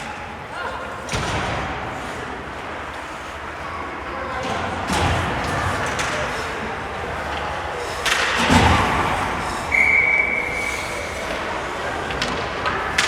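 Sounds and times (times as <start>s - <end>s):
referee's whistle blast: 9.7s - 10.8s.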